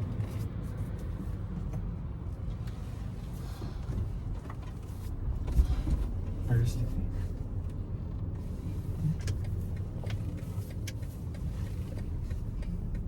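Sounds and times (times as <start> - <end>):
car engine running: 2.6 - 13.0.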